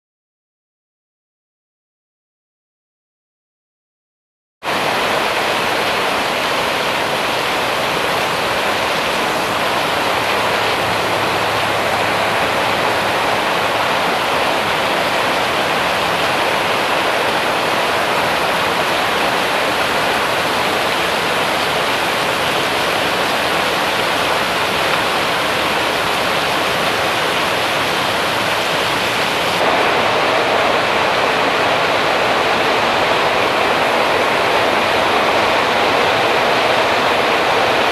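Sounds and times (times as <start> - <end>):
heavy rain pouring: 4.7 - 37.9.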